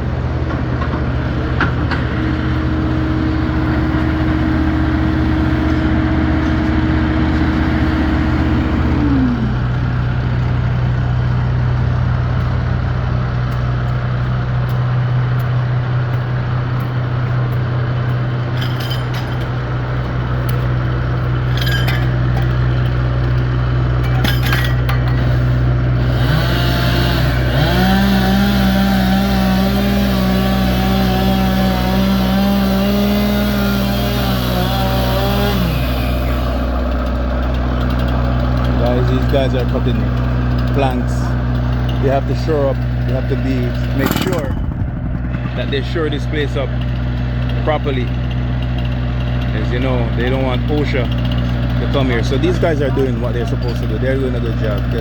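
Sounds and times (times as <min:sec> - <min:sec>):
engines humming: 0:00.0 - 0:55.0
higher engine note: 0:01.9 - 0:18.4, 0:38.4 - 0:48.2
short clinks: 0:18.1 - 0:25.6.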